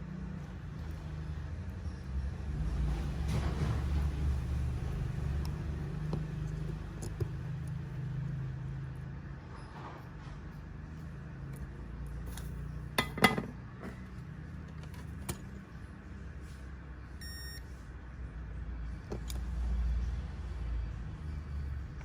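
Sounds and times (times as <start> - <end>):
short electronic beep: 17.2 - 17.6.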